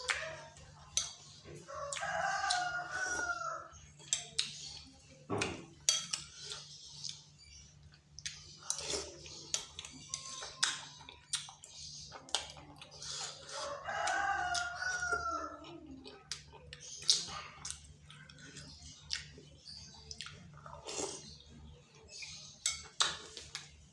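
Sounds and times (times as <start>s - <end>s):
eating sounds: 0.0s - 23.9s
rooster crowing: 1.7s - 3.7s, 13.6s - 15.6s.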